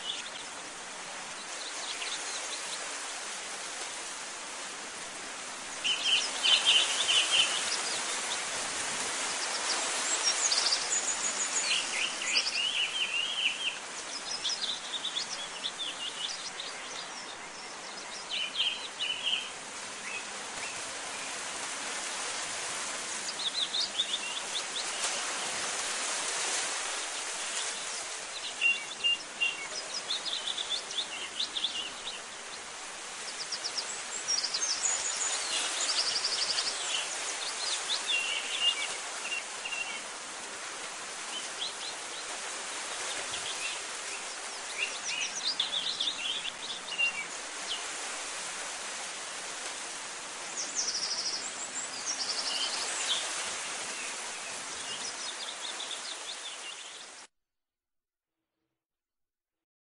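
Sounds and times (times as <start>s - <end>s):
steady background hiss: 0.0s - 57.2s
small birds chirping and trilling: 5.6s - 21.4s, 22.2s - 25.5s, 26.4s - 40.2s, 41.1s - 49.2s, 50.4s - 57.2s.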